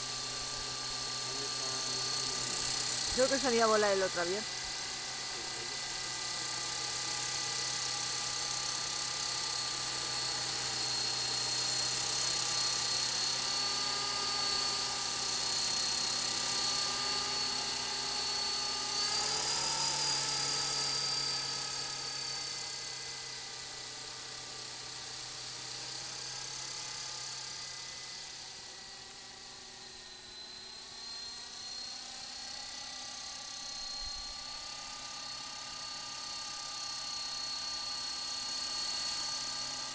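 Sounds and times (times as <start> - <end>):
toy helicopter rotors whining: 0.0 - 39.9.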